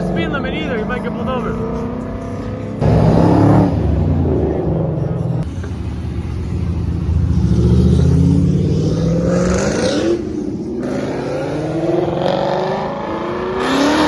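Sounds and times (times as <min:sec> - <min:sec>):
car engine accelerating: 0:01.0 - 0:10.2.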